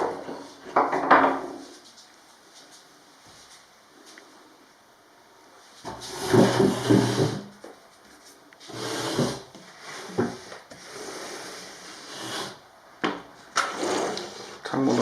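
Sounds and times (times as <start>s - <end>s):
window frame scraping on track: 5.9s - 7.5s, 8.7s - 12.6s, 13.6s - 14.6s.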